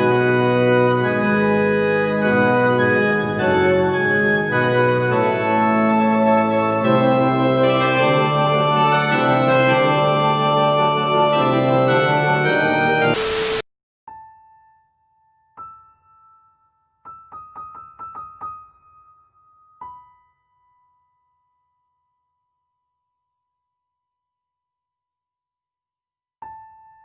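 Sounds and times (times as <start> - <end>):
organ chords: 0.0 - 13.6.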